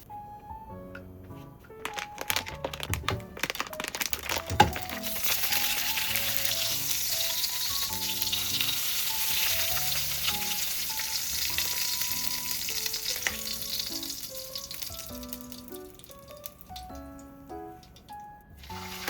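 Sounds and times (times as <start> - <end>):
food sizzling in a pan: 4.9 - 16.2, 18.6 - 19.0.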